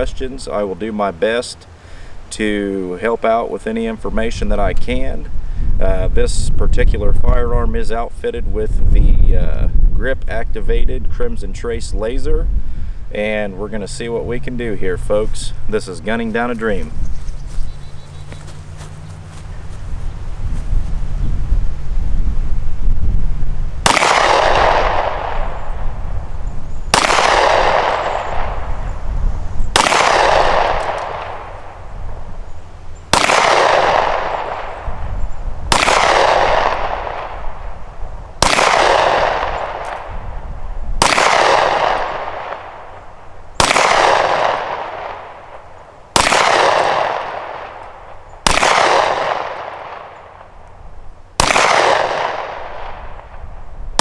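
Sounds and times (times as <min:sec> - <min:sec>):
pistol shots with echo: 0:23.8 - 0:26.1, 0:26.9 - 0:28.8, 0:29.7 - 0:31.9, 0:33.1 - 0:35.0, 0:35.7 - 0:37.8, 0:38.4 - 0:40.2, 0:41.0 - 0:50.6, 0:51.4 - 0:54.0.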